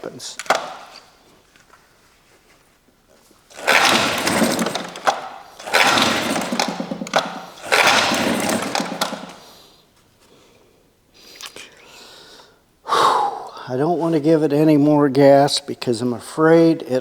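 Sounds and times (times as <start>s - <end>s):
recoil starter rope whirr: 0.3s - 1.0s, 3.5s - 9.6s.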